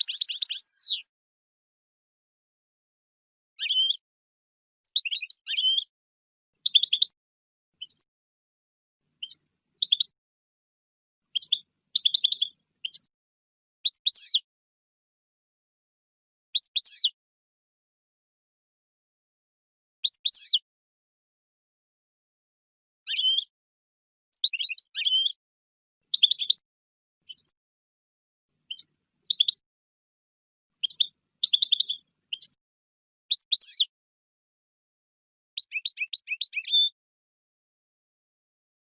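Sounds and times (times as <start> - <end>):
goldfinch twittering: 0.0 - 1.0, 9.2 - 10.1, 11.4 - 13.0, 30.8 - 32.6
finch chirping: 0.0 - 1.1, 3.6 - 4.0, 4.8 - 5.9, 6.6 - 7.1, 7.8 - 8.0, 9.2 - 10.2, 11.3 - 13.1, 13.9 - 14.4, 16.6 - 17.1, 20.0 - 20.6, 23.1 - 23.5, 24.3 - 25.4, 26.1 - 26.6, 27.3 - 27.5, 28.7 - 29.6, 30.8 - 32.6, 33.3 - 33.9, 35.6 - 37.0.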